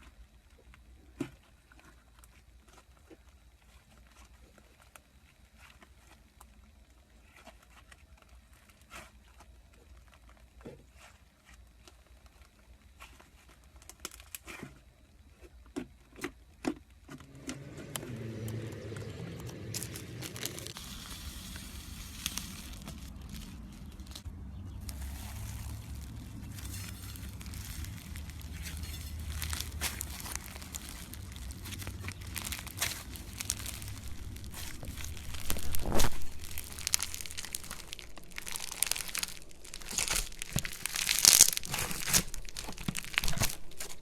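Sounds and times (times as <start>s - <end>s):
slime squishing and popping: 17.6s - 44.0s.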